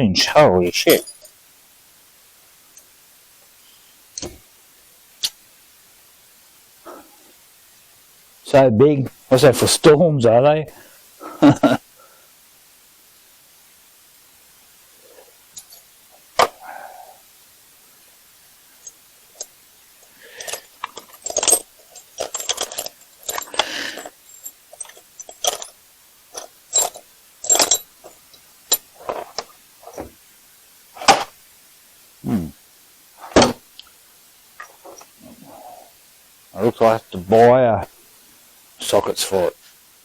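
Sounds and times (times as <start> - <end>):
metal gear clinking and clattering: 0.8 - 1.4, 15.6 - 16.5, 20.4 - 30.1.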